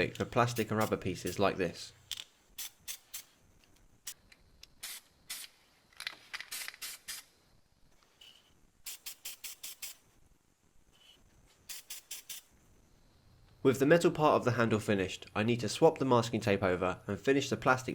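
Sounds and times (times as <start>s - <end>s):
spray can hissing: 2.6s - 3.3s, 8.9s - 10.0s, 11.7s - 12.4s.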